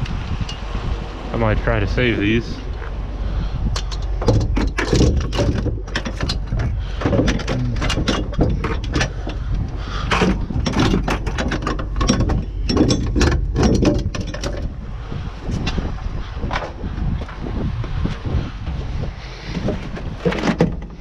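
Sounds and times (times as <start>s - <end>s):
wind rumble on microphone: 0.0s - 21.0s
scrap metal clanking: 3.8s - 14.7s.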